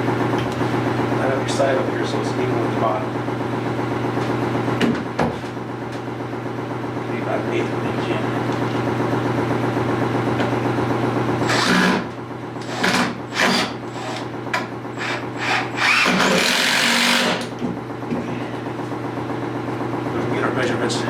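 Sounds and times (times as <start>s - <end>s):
power drill driving screws: 11.4s - 12.0s, 12.6s - 14.2s, 15.0s - 17.5s
steady low hum: 16.8s - 21.0s.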